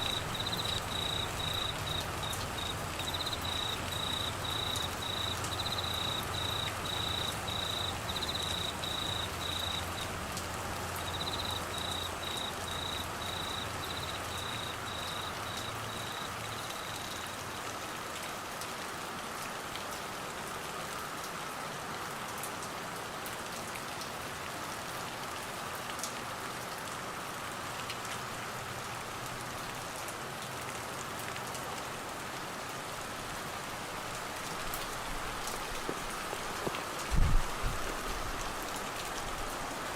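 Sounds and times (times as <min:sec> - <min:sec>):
cricket chirping: 0:00.0 - 0:17.4
raindrop ticks: 0:00.0 - 0:17.7, 0:34.0 - 0:39.6
steady rain falling: 0:00.0 - 0:39.9.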